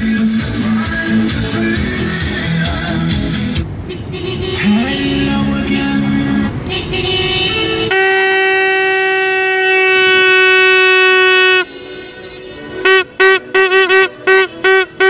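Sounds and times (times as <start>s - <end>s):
traffic and street noise: 0.0s - 15.0s
car horn honking: 3.8s - 6.0s, 6.6s - 15.0s.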